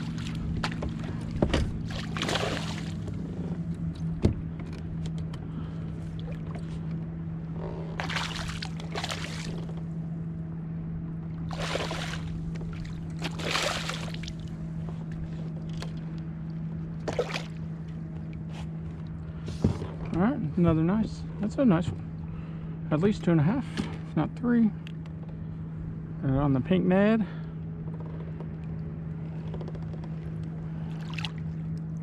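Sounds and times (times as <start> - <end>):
water splashing around kayak: 0.0 - 10.0, 11.2 - 19.8, 30.0 - 32.0
low hum: 0.0 - 32.0.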